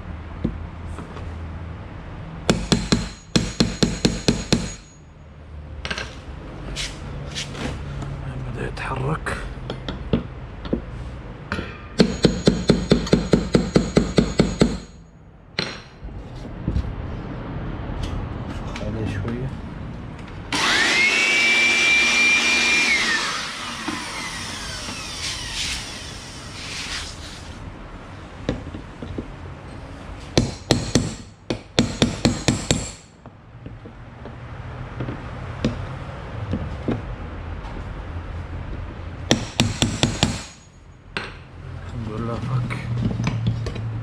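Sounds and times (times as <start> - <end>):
hammer striking metal: 2.5 - 5.1, 11.5 - 16.1, 30.4 - 33.2, 39.3 - 41.4.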